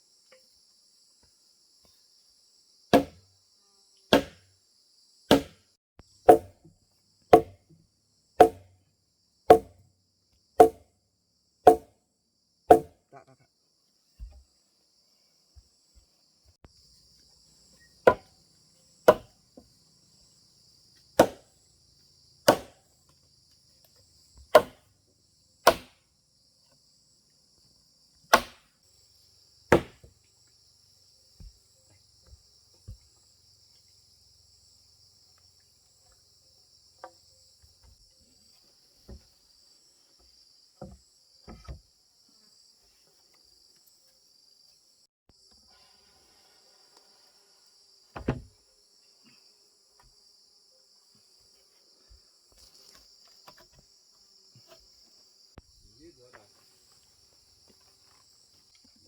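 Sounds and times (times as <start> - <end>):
insects chirping: 0.0 - 59.0
hand tool striking wood: 2.9 - 3.2, 4.1 - 4.5, 5.3 - 5.6, 6.3 - 6.7, 7.3 - 7.7, 8.4 - 8.8, 9.5 - 9.8, 10.6 - 10.8, 11.7 - 11.9, 12.7 - 13.0, 18.0 - 18.3, 19.1 - 19.3, 21.2 - 21.5, 22.5 - 22.8, 24.5 - 24.9, 25.6 - 26.0, 28.3 - 28.6, 29.7 - 30.1, 48.2 - 48.5.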